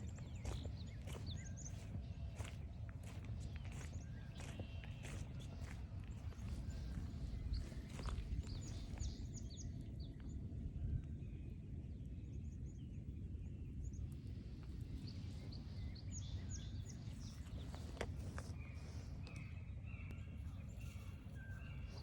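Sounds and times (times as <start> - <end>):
footstep on trail: 0.0 - 9.2
small birds calling: 0.0 - 10.2, 14.8 - 22.0
steady low rumble: 0.0 - 22.0.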